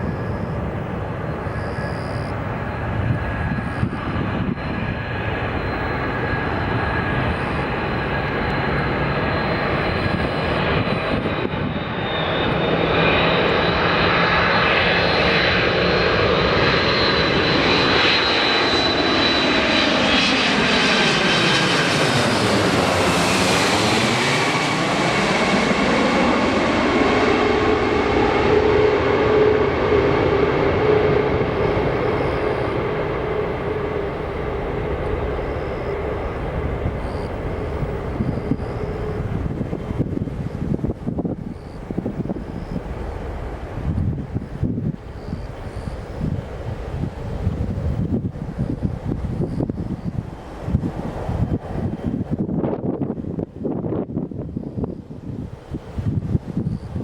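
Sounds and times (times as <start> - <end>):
jet plane flying past: 0.0 - 57.0.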